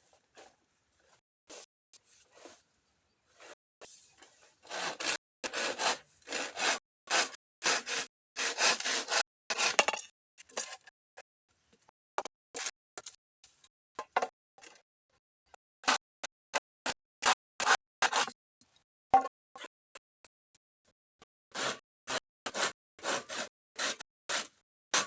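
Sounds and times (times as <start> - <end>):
hand tool rasping bamboo: 4.6 - 9.9, 21.5 - 25.0.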